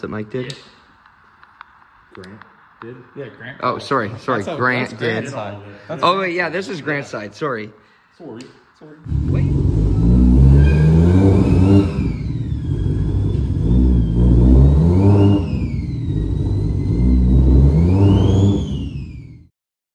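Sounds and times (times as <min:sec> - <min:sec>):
car engine revving with whine: 0:09.0 - 0:19.5.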